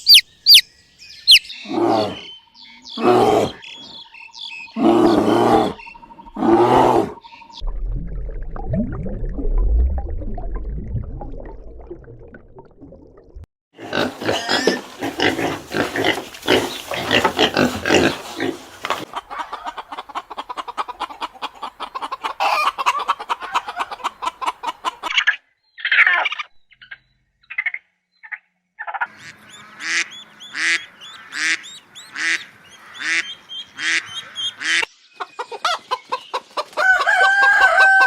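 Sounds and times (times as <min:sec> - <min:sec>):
loud repeated bird calls: 0:00.0 - 0:07.6, 0:25.0 - 0:37.5
pig grunting: 0:03.0 - 0:03.6, 0:04.8 - 0:05.8, 0:06.4 - 0:07.2, 0:13.8 - 0:18.8
hens clucking: 0:14.0 - 0:25.2, 0:29.0 - 0:38.0
poultry flock chattering: 0:14.2 - 0:25.0
rooster crowing: 0:36.8 - 0:38.0.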